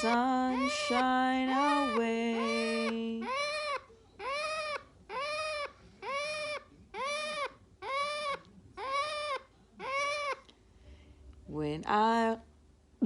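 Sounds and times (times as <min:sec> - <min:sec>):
parrot calling: 0:00.0 - 0:10.5.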